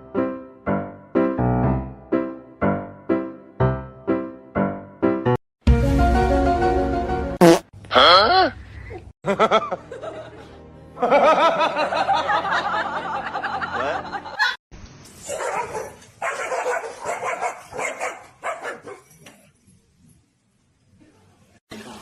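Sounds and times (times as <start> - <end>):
music: 0.0 - 7.4, 9.4 - 14.4
people laughing: 9.2 - 14.6
dog barking: 15.3 - 19.1.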